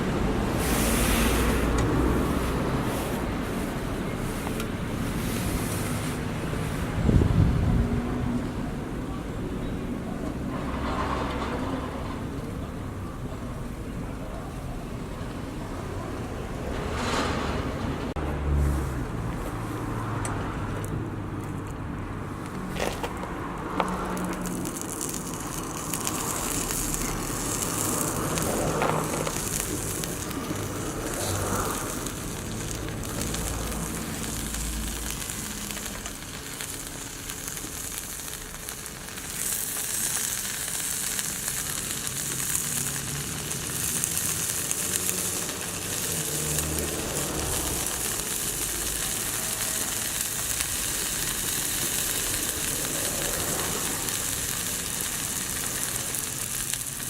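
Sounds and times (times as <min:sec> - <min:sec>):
food sizzling in a skillet: 0:00.0 - 0:07.0, 0:23.5 - 0:57.0.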